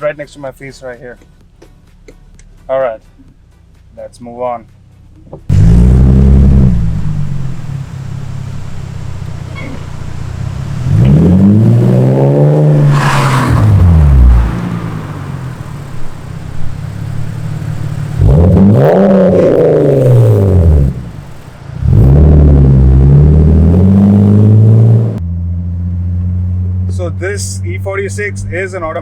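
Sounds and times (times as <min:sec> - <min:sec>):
loud car exhaust revving: 0:05.5 - 0:28.5.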